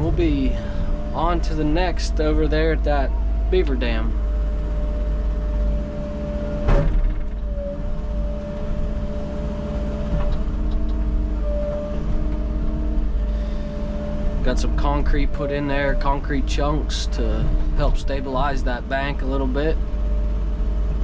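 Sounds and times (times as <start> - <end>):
digger engine running: 0.0 - 21.0.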